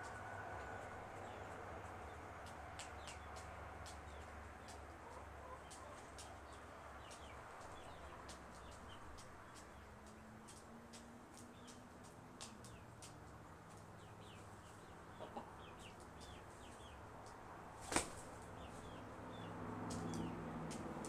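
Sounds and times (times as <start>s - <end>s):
small bird chirping: 12.4s - 17.0s.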